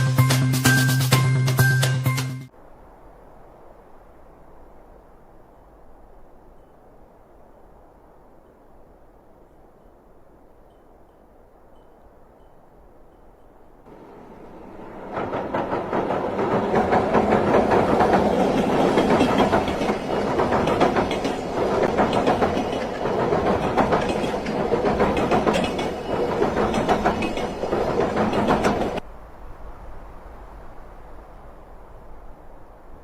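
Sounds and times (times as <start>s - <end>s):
rapid clattering: 14.8s - 29.0s.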